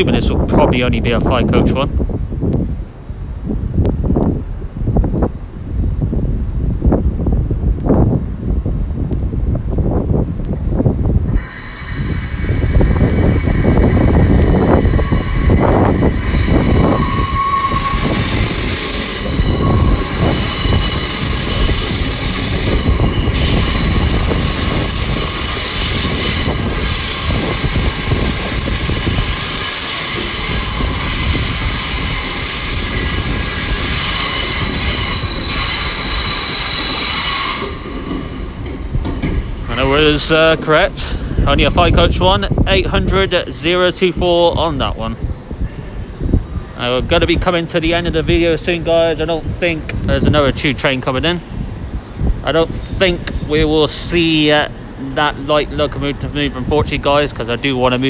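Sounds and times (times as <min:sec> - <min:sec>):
train rumbling: 0:00.0 - 0:58.0
high-pitched train squeal: 0:11.3 - 0:42.1, 0:42.9 - 0:46.8.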